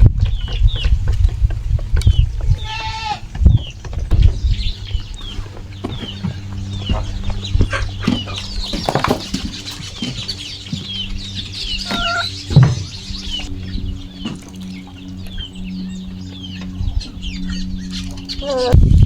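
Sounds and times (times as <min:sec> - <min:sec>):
steady low hum: 0:00.0 - 0:19.0
chickens clucking: 0:00.4 - 0:15.5.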